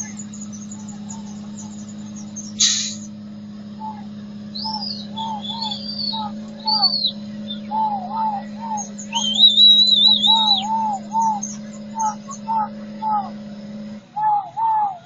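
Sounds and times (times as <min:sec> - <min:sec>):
bird warbling: 0:00.0 - 0:15.0
birds calling in arched notes: 0:00.0 - 0:15.0
steady low drone: 0:00.0 - 0:15.0
brief hiss: 0:02.6 - 0:03.1.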